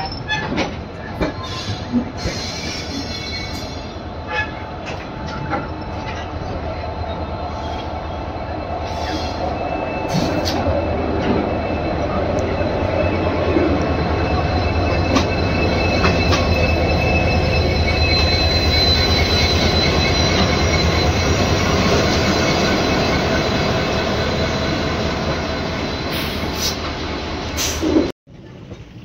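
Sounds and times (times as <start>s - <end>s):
train rumbling on rails: 0.0s - 29.0s
high wheel squeal: 5.4s - 28.1s.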